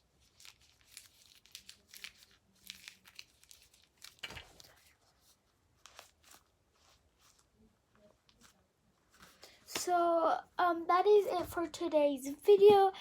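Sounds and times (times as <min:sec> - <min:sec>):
crinkling and tearing: 0:00.1 - 0:09.4.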